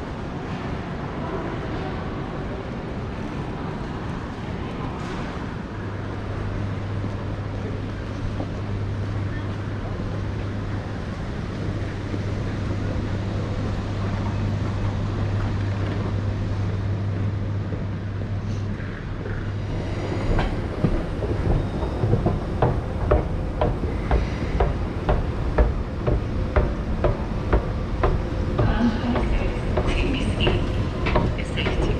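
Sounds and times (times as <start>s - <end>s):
train humming on track: 0.0s - 31.9s
wheels clicking over rail joints: 20.2s - 31.9s.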